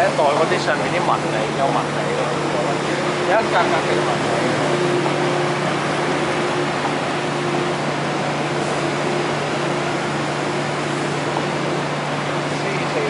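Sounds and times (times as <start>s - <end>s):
electric train rumble and hum: 0.0s - 13.0s.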